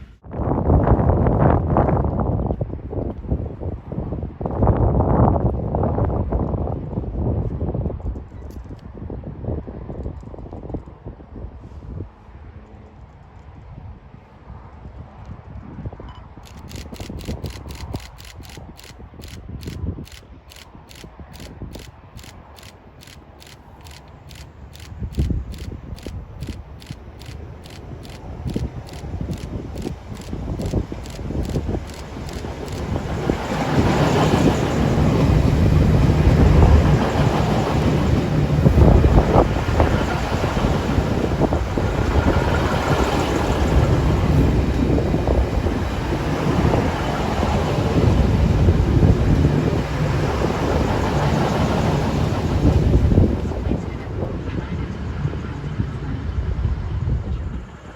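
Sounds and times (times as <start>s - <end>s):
wind on microphone: 0.0s - 57.9s
rapid mechanical ticking: 16.4s - 33.0s
diesel train rumbling: 16.4s - 57.9s.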